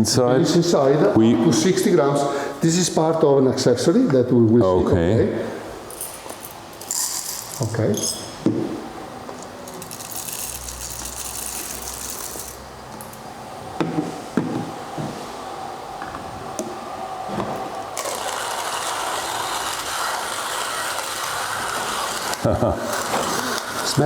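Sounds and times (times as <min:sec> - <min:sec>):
hand coffee grinder grinding beans: 0:06.8 - 0:07.7, 0:09.4 - 0:12.6, 0:18.0 - 0:24.0.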